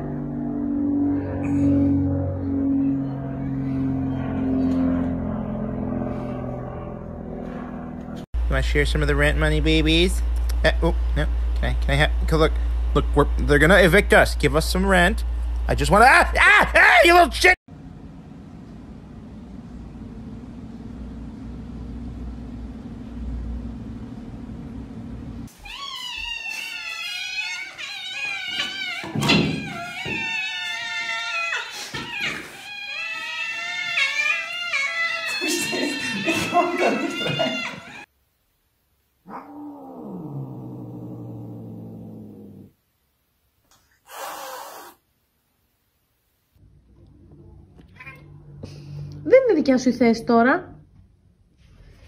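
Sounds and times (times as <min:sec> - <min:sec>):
kittens meowing: 0:25.5 - 0:38.1
cat growling yowl: 0:39.2 - 0:42.7
cat hissing: 0:44.0 - 0:45.0.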